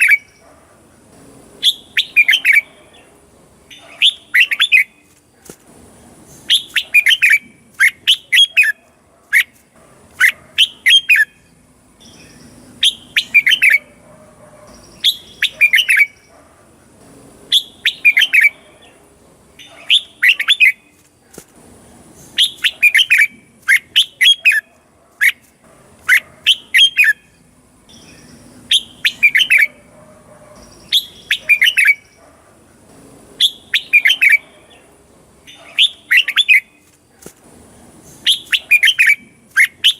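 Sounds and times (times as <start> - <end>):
bird whistling song: 0.0 - 0.4, 1.6 - 2.8, 3.7 - 5.1, 6.4 - 8.8, 10.2 - 14.0, 14.7 - 16.3, 17.5 - 18.6, 19.6 - 21.0, 22.2 - 25.4, 26.1 - 29.8, 30.6 - 32.2, 33.4 - 34.4, 35.5 - 36.9, 38.1 - 39.9.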